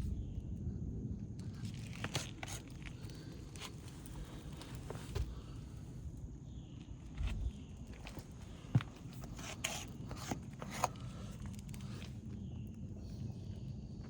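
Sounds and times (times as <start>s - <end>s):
footsteps on shingle roof: 1.7s - 6.0s, 6.8s - 12.4s.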